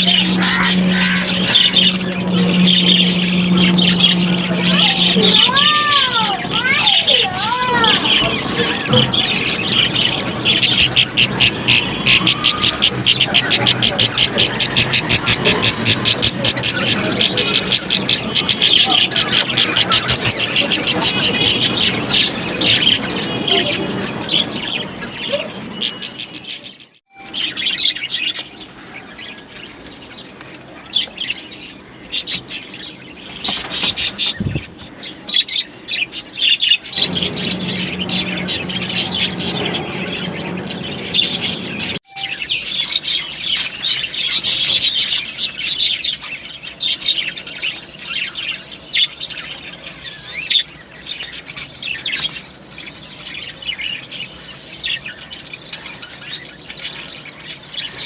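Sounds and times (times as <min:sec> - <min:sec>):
steady low hum: 0:00.0 - 0:06.7
budgerigars chirping: 0:00.0 - 0:58.0.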